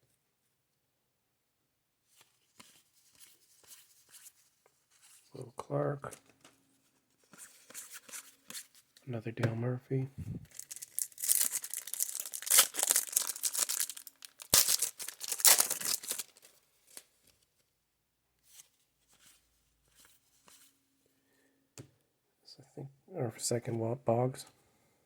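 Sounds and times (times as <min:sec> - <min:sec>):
card pack wrapper tearing: 0:10.5 - 0:17.0.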